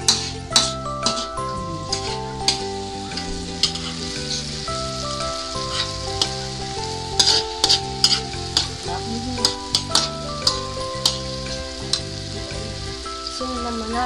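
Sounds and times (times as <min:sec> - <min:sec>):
metal spoon scraping wok: 0:00.0 - 0:13.4
metal clinking on wok: 0:00.0 - 0:14.0
vegetables sizzling in hot oil: 0:00.0 - 0:14.0.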